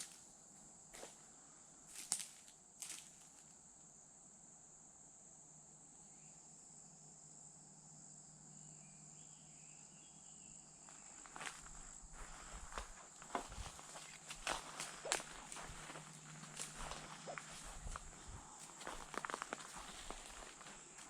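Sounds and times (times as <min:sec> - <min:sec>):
footsteps on woodland floor: 0:10.9 - 0:21.0
insect trilling: 0:11.1 - 0:21.0.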